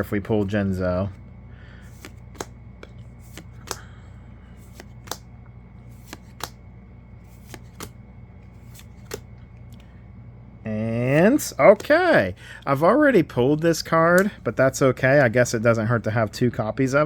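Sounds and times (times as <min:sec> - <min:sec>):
steady low hum: 0:00.0 - 0:17.0
playing cards snapping: 0:01.9 - 0:03.9, 0:04.6 - 0:05.3, 0:05.9 - 0:06.6, 0:07.3 - 0:08.0, 0:08.6 - 0:09.9.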